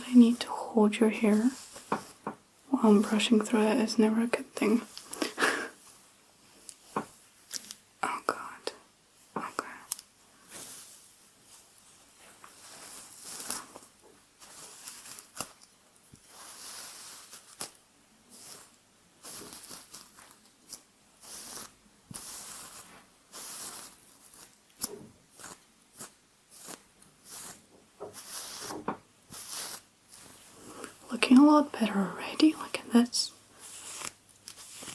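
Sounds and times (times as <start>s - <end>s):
hairbrush strokes through hair: 0.0s - 3.8s, 10.4s - 15.6s, 16.2s - 34.9s.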